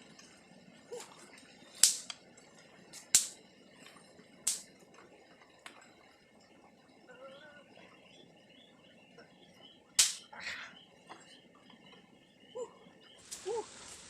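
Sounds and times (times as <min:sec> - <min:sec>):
sharp snaps: 0:01.8 - 0:02.2, 0:02.9 - 0:03.4, 0:04.4 - 0:04.7, 0:10.0 - 0:10.4.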